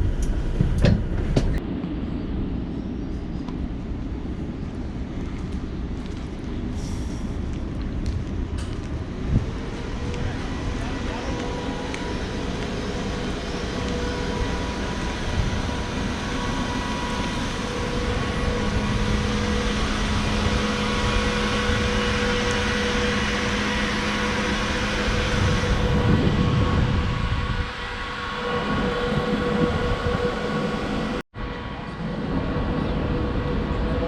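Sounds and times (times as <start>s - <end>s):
tram rumbling on rails: 0.0s - 34.0s
steady whine of held tones: 9.1s - 34.0s.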